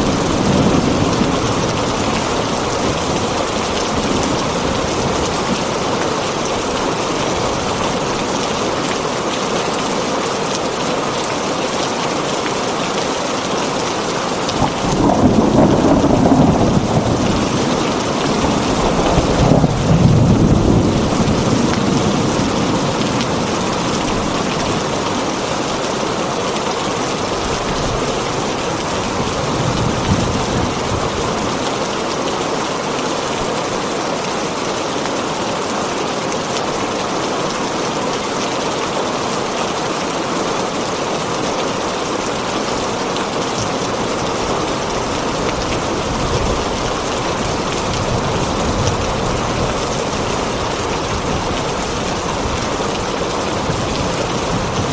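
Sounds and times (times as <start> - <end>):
heavy rain on a tin roof: 0.0 - 54.9
thunder rumbling: 14.4 - 25.5.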